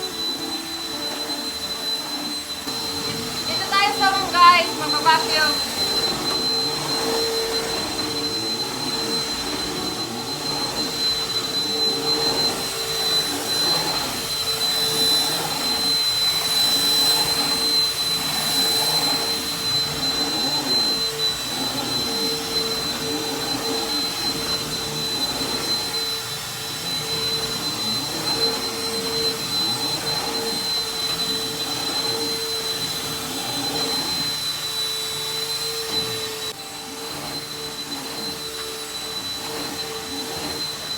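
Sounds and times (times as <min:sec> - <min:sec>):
vacuum cleaner on carpet: 0:00.0 - 0:40.9.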